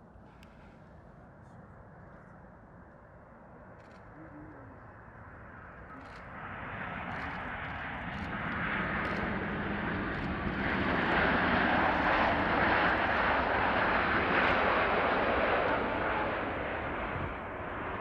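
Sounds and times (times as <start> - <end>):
jet engines on approach: 4.8 - 18.0.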